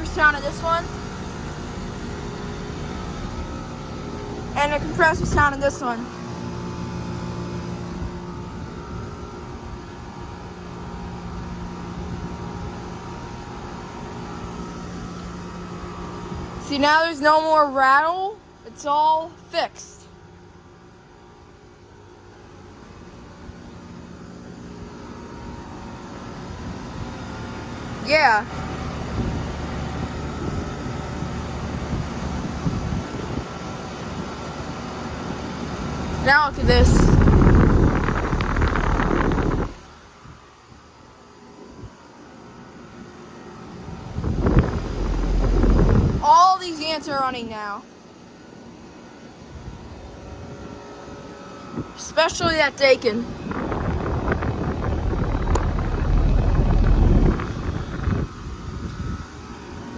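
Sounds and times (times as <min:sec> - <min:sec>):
air conditioner compressor hum: 0:00.0 - 0:59.9
condenser fan whoosh: 0:25.4 - 0:40.4, 0:43.0 - 0:47.0, 0:52.9 - 0:59.9.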